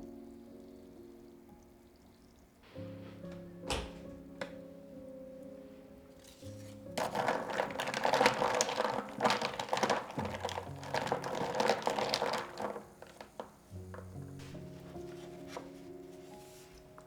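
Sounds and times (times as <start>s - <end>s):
soft background music: 0.0s - 17.0s
crackling rustling handling noise: 5.8s - 17.0s.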